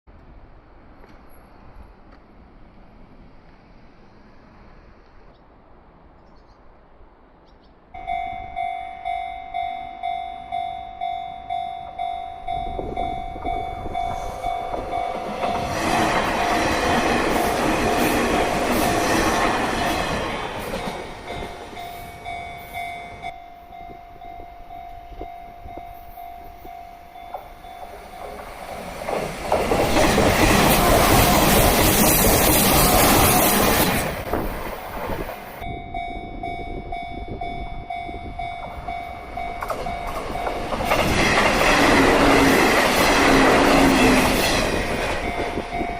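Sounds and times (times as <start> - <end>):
wheel and rail noise: 0.1 - 45.9
electric train passing: 0.2 - 6.2, 6.8 - 45.9
level crossing warning bell: 8.0 - 29.0, 35.6 - 45.9.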